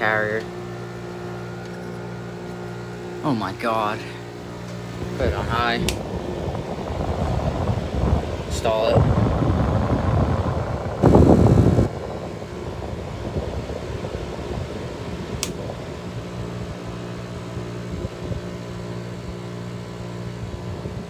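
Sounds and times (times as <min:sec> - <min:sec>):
low hum: 0:00.0 - 0:15.1
air conditioner fan rushing: 0:00.0 - 0:21.0
sharp click: 0:15.4 - 0:15.6.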